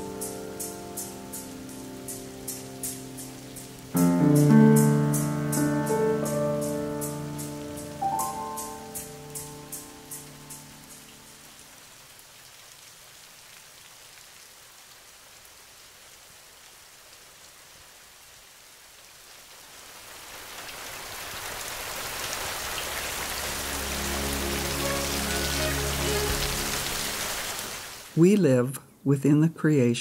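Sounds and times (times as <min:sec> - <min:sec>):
piano music: 0:00.0 - 0:11.6, 0:23.2 - 0:27.6
steady rain falling: 0:00.0 - 0:28.6.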